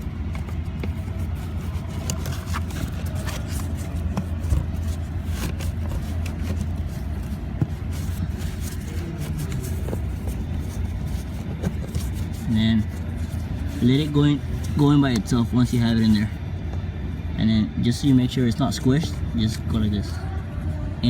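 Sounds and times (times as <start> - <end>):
air filter scraping and clicking: 0.0 - 16.8
steady low hum: 0.0 - 21.0.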